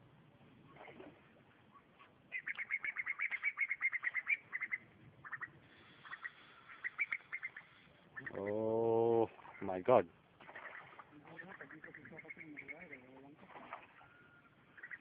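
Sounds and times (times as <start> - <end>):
bird calling with sharp repeated notes: 1.7 - 8.7, 10.4 - 15.0.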